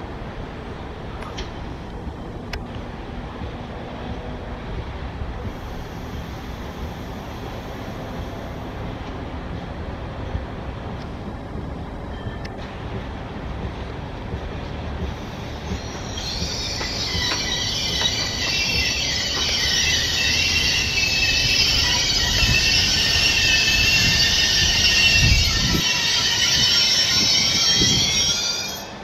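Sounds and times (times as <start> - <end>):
low train rumble: 0.0 - 29.0
train wheels squealing: 15.1 - 29.0.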